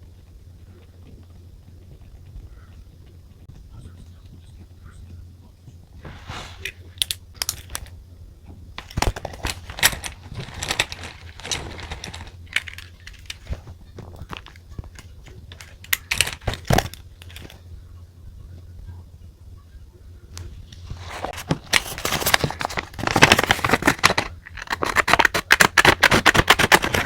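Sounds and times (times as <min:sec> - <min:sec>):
paper rustling: 0:06.0 - 0:07.9, 0:08.8 - 0:14.6, 0:20.8 - 0:27.0.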